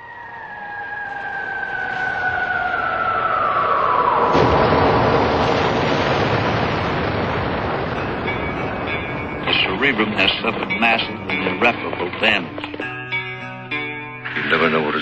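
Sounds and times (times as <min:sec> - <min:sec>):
rumbling explosion: 0:00.7 - 0:12.2.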